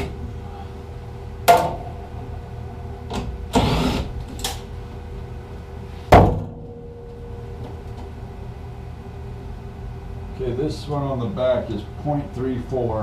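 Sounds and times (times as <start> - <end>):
steady low hum: 0.0 - 13.0
heavy thump: 6.1 - 6.9.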